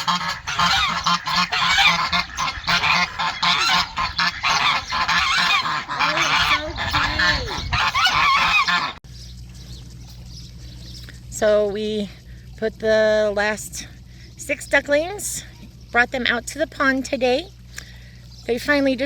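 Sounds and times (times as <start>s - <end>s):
geese honking: 0.0s - 9.0s.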